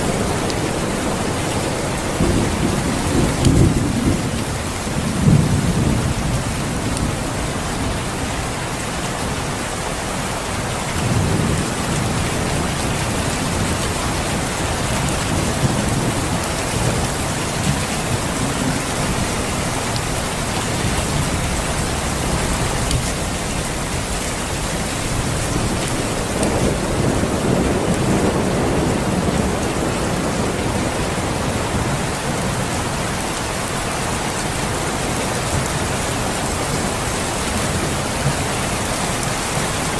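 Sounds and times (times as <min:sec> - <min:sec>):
thunder rolling: 0:00.0 - 0:08.1, 0:11.0 - 0:33.0
steady rain: 0:00.0 - 0:39.9.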